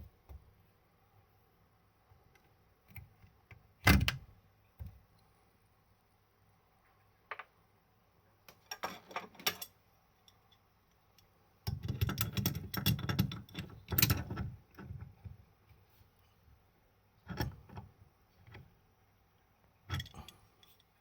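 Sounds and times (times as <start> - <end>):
tools clattering and knocking: 8.5 - 9.8, 11.7 - 15.0
small parts clicking and scraping: 8.5 - 15.2, 19.9 - 21.0.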